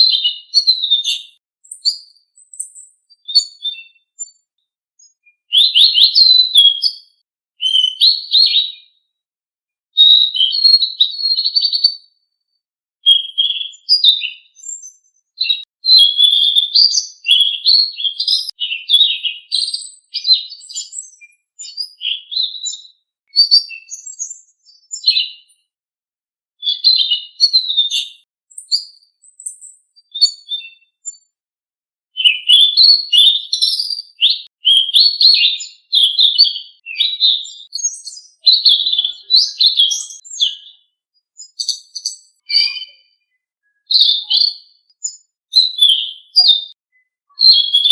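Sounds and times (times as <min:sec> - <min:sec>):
songbird twittering: 0:00.1 - 0:04.4, 0:32.2 - 0:40.8, 0:41.4 - 0:47.9.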